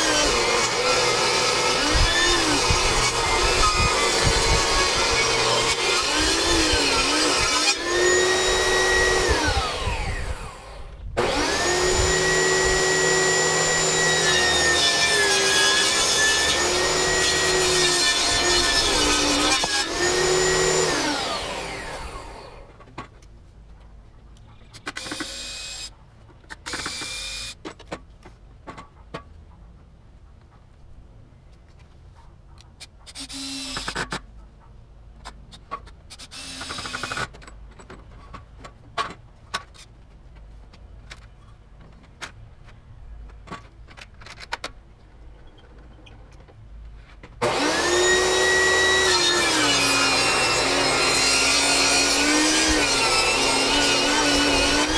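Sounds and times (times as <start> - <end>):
table saw cutting wood: 0.0 - 22.6, 47.4 - 54.9.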